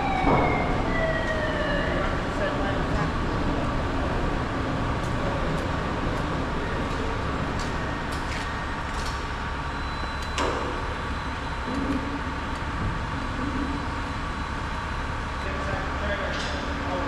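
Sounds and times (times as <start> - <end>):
vehicle engine running: 1.7 - 9.9.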